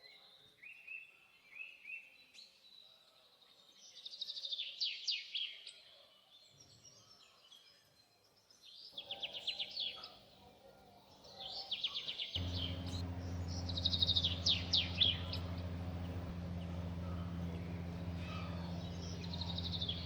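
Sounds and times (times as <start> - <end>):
small birds chirping: 11.4 - 20.0
low mechanical hum: 12.4 - 20.0.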